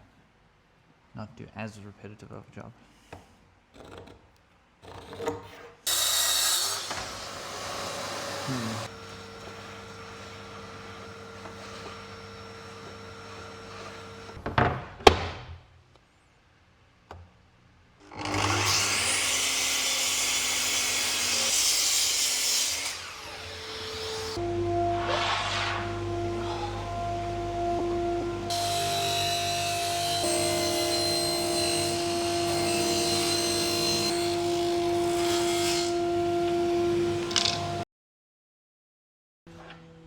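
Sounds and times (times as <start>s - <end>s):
power saw cutting wood: 5.8s - 14.4s, 18.0s - 37.8s.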